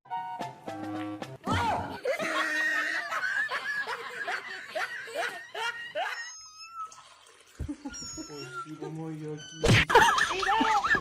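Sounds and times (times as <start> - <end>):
person laughing: 2.0 - 6.2.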